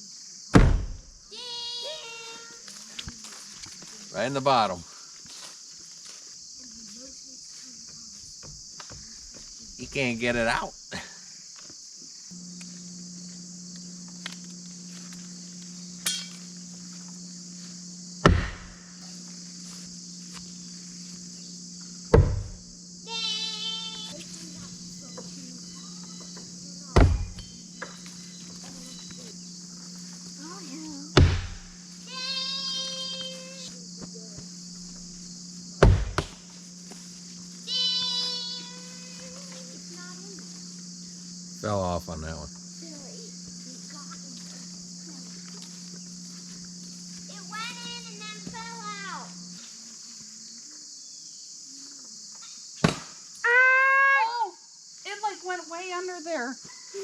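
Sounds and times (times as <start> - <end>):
crickets chirring: 0.0 - 57.0
axe striking wooden wall: 0.5 - 1.0, 18.2 - 18.8, 22.1 - 22.5, 31.2 - 31.6, 35.8 - 36.4, 52.8 - 53.2
steady low hum: 2.0 - 53.4
long high call: 37.6 - 40.0.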